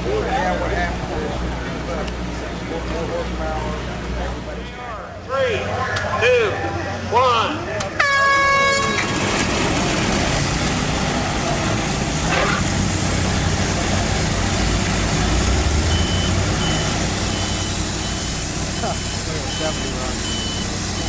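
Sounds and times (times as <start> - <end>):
sawmill engines cutting logs: 0.0 - 21.0
air horn blast: 8.0 - 9.9
electronic beeper: 14.5 - 21.0.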